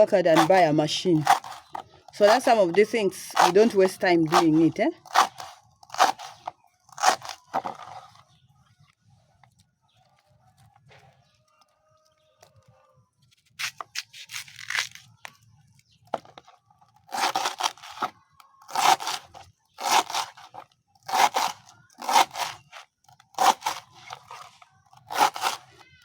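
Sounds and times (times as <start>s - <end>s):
blade chopping banana stem: 0.0s - 8.0s, 17.1s - 18.1s, 18.7s - 25.8s.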